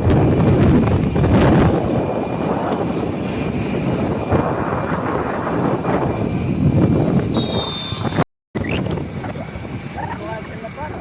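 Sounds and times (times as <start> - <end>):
vehicle rumble: 0.0 - 11.0
wind buffeting microphone: 0.0 - 11.0
thin high whistle: 7.3 - 8.2.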